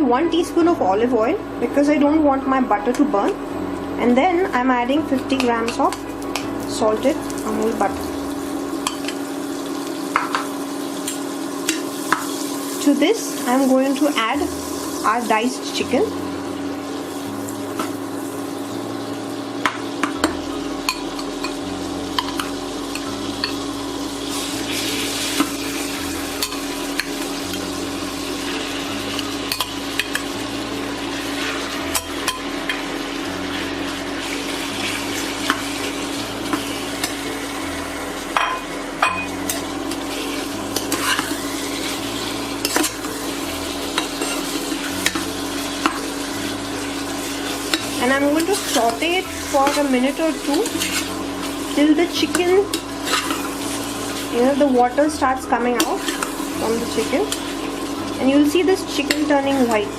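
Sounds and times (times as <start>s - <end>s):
steady hum: 0.0s - 59.9s
chicken sizzling in a frying pan: 4.5s - 59.9s
spatula scraping and tapping pan: 38.4s - 41.4s, 43.9s - 46.0s, 47.7s - 51.1s, 52.2s - 53.8s.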